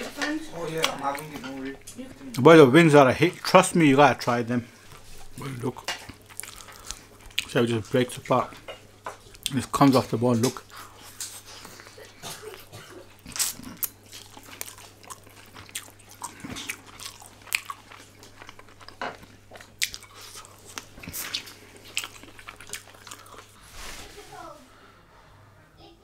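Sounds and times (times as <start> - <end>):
person biting and chewing: 13.2 - 23.6.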